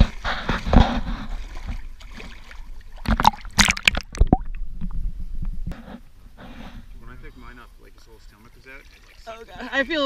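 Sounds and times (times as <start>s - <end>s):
seawater splashing and sloshing: 0.0s - 4.3s, 8.3s - 10.0s.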